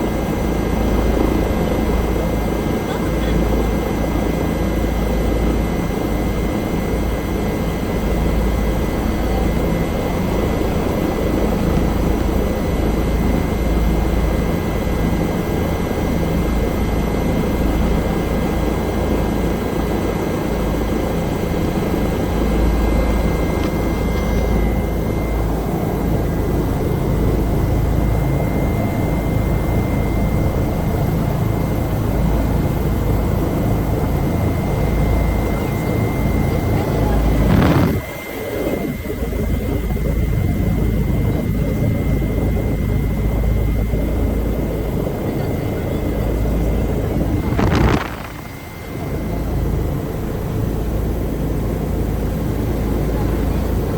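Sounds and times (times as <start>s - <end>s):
helicopter turbine and rotor: 0.0s - 53.9s.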